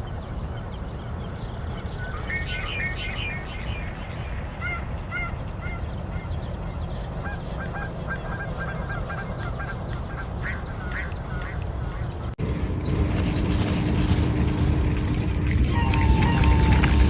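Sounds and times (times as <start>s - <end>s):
bird calling: 1.8s - 17.0s
low rumble: 11.6s - 17.0s.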